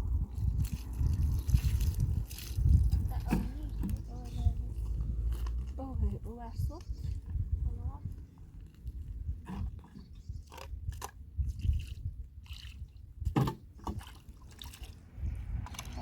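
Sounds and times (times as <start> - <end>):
low rumble: 0.0 - 9.8, 14.9 - 16.0.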